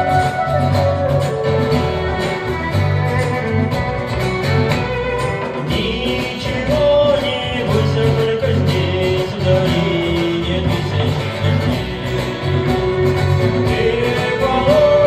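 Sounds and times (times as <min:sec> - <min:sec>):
gliding melody notes: 0:00.0 - 0:05.6
acoustic guitar rhythm: 0:00.0 - 0:15.0.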